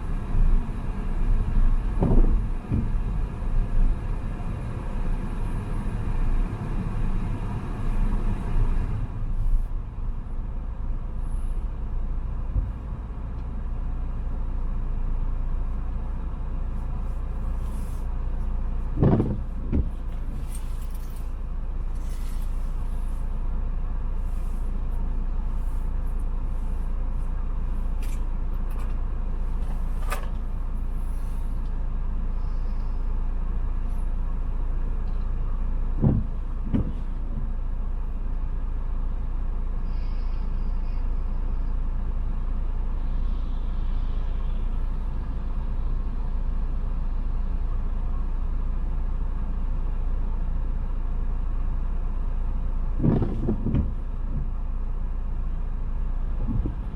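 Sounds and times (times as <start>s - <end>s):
car engine and road rumble: 0.0s - 56.9s
short low thumps: 1.8s - 3.2s, 18.9s - 20.1s, 36.0s - 37.5s, 56.4s - 56.9s.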